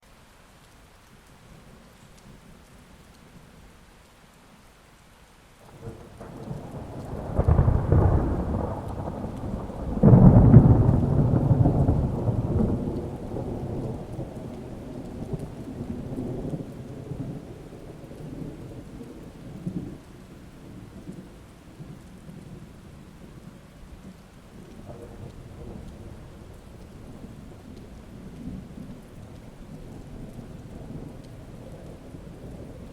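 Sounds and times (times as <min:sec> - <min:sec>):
steady rain: 0:00.0 - 0:32.9
thunder rolling: 0:05.6 - 0:23.4, 0:24.6 - 0:32.9.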